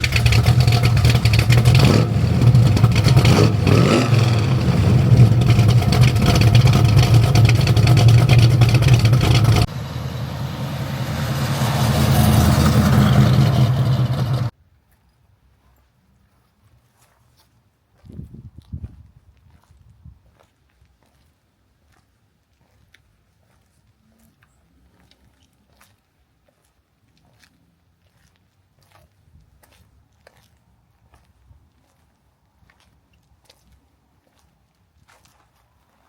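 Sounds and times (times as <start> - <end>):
car engine rumbling and revving: 0.0 - 14.5.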